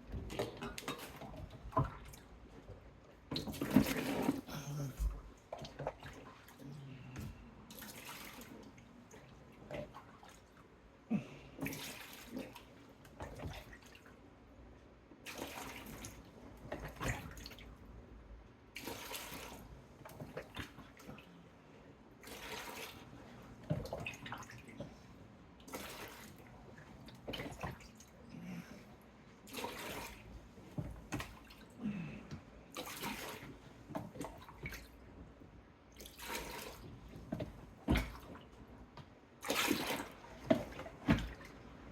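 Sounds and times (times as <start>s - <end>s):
water splashing into bucket: 3.3s - 4.6s, 11.6s - 14.0s, 15.3s - 17.6s, 18.8s - 21.1s, 22.2s - 23.1s, 25.7s - 26.5s, 29.5s - 31.6s, 32.7s - 34.9s, 36.0s - 36.9s, 39.4s - 41.6s.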